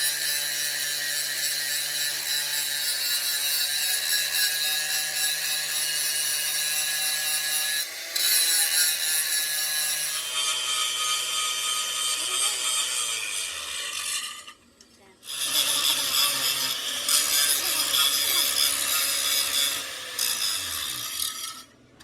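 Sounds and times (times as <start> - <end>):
power tool working metal: 0.0 - 14.6, 15.2 - 21.8.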